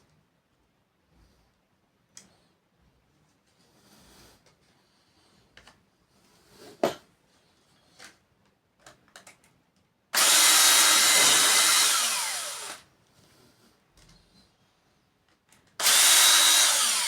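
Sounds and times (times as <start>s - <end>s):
electric drill running: 10.2s - 12.8s, 15.8s - 17.0s.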